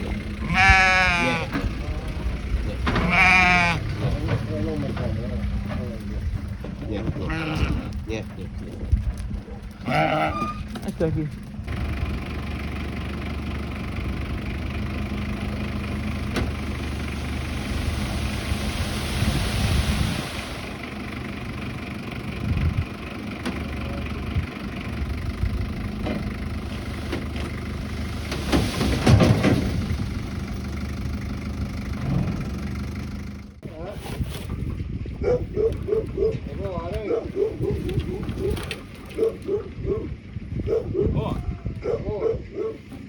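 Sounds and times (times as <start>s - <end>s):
knocking and clatter: 3.8s - 7.1s
hiss: 17.5s - 20.8s.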